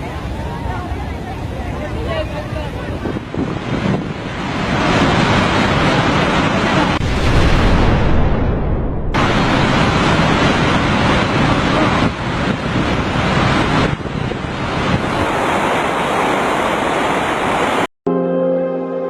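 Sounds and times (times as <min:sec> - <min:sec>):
loud rushing noise: 0:03.3 - 0:17.9
soft music: 0:18.1 - 0:19.0.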